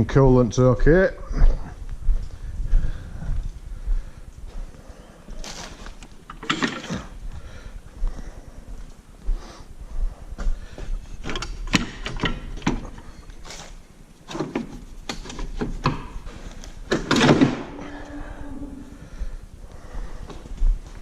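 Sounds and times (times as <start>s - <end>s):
knocks and clicks of parts handled: 6.0s - 7.1s, 10.8s - 13.4s, 14.3s - 17.7s.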